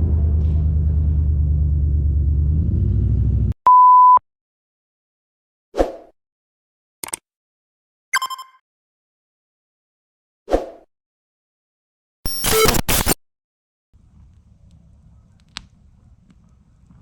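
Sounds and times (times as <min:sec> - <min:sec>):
vehicle engine running: 0:00.0 - 0:03.6
loud single-pitch beep: 0:03.6 - 0:04.2, 0:08.2 - 0:08.6, 0:12.3 - 0:12.9.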